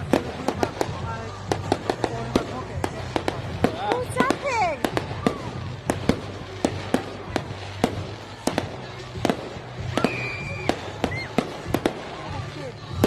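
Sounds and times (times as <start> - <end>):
fireworks bangs: 0.0 - 13.0
firework whistle: 9.8 - 11.8.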